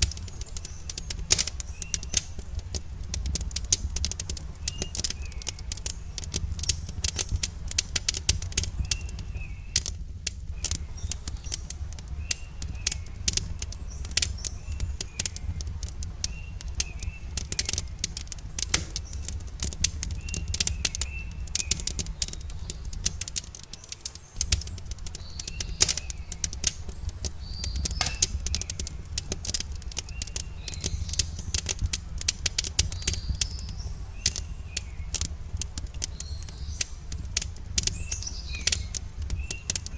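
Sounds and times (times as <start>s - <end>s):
campfire crackling and popping: 0.0s - 39.9s
small birds chirping: 0.0s - 39.9s.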